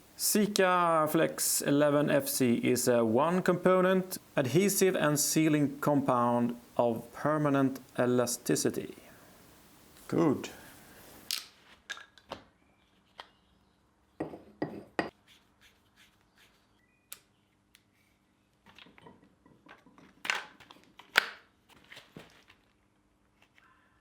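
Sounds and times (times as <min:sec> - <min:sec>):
faint steady hum: 0:00.0 - 0:11.3.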